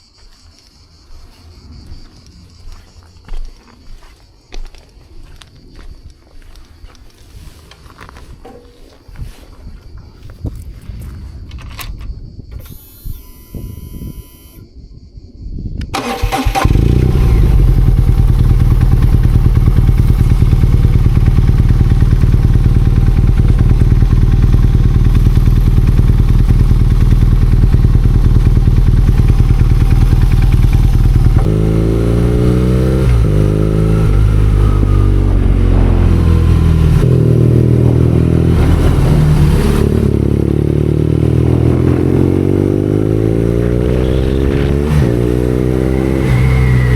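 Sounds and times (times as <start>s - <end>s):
motorcycle engine starting and idling: 15.8s - 46.9s
motorcycle revving through gears: 16.0s - 46.9s.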